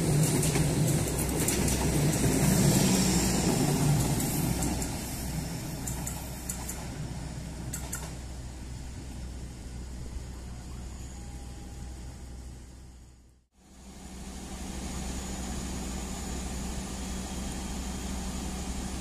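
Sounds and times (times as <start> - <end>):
train wheel clicks: 0.0 - 7.0, 7.7 - 8.2
passenger train rumbling past: 0.0 - 12.9, 13.6 - 19.0.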